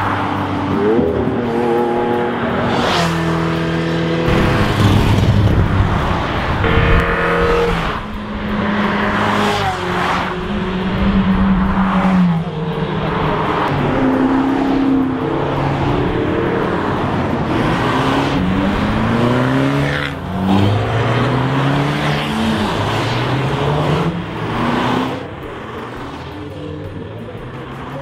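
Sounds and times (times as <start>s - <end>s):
sports cars passing by: 0.0s - 28.0s.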